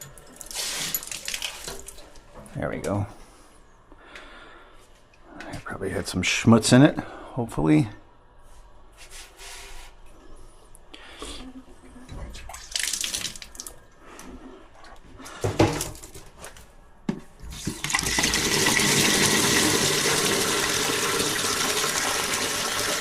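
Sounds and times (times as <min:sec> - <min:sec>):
water rushing through pipes: 0:17.5 - 0:23.0.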